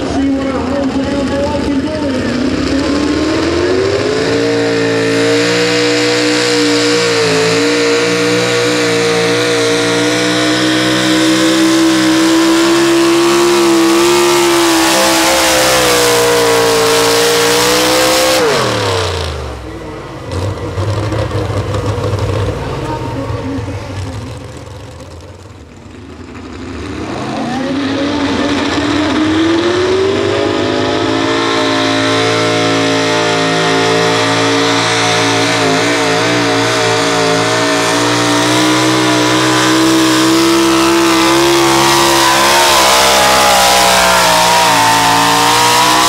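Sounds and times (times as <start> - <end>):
truck engine revving: 0.0 - 46.0.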